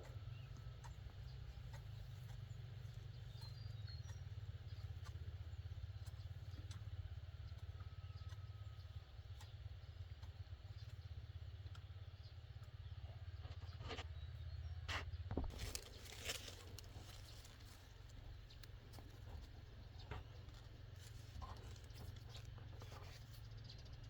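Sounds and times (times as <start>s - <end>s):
faint clicks and ticks: 0.0s - 14.1s
steady low rumble: 15.3s - 23.3s.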